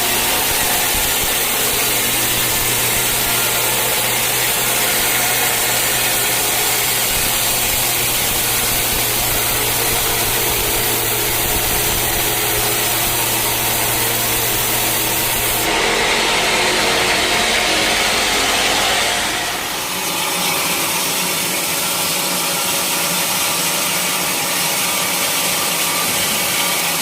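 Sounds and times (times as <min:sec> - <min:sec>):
low hum: 0:00.0 - 0:20.4
sawmill saw cutting through log: 0:00.0 - 0:27.0.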